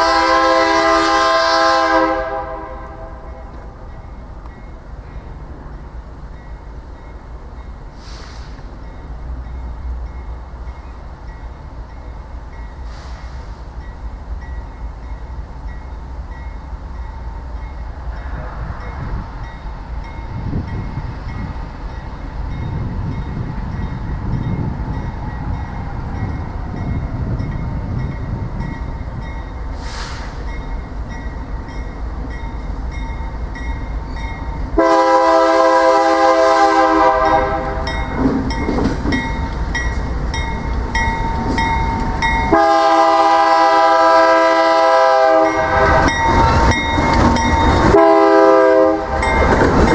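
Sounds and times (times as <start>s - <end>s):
locomotive air horn chord: 0.0s - 3.6s, 34.8s - 38.0s, 42.5s - 46.2s, 47.9s - 49.3s
train rumbling: 0.0s - 49.9s.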